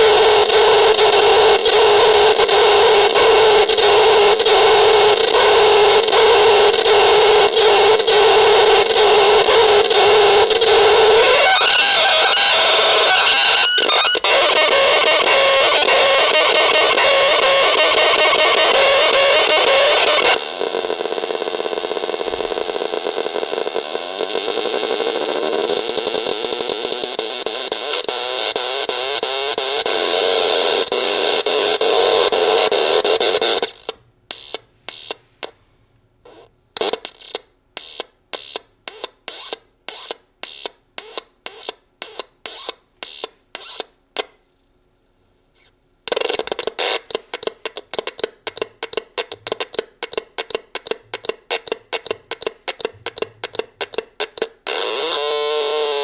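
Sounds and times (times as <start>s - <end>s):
buzzy electronic radio noise: 0.0s - 33.8s
short electronic bleeps: 31.8s - 35.2s, 46.1s - 54.6s.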